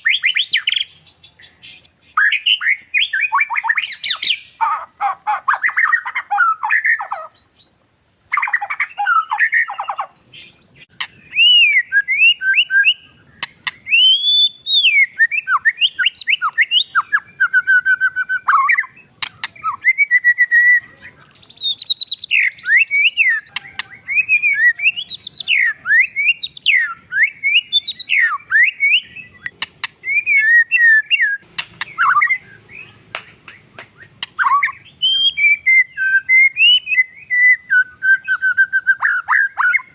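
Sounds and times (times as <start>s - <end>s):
bird singing whistled phrases: 0.0s - 4.8s, 8.4s - 39.9s.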